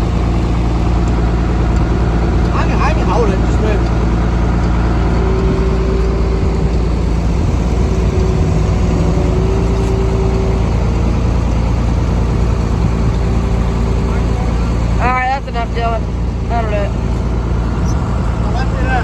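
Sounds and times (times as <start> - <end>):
engine running steadily: 0.0 - 19.0
thin high whine: 5.1 - 14.8.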